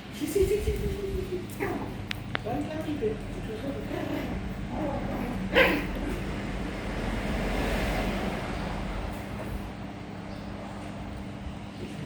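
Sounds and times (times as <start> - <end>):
puppy barking: 3.8 - 6.3.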